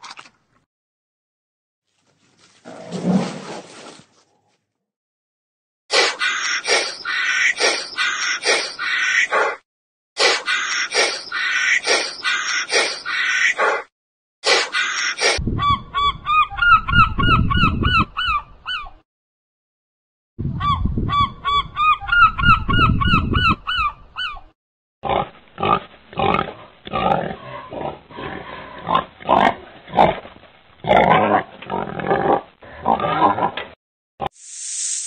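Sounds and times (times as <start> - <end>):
pig grunting and snorting: 25.0 - 33.7.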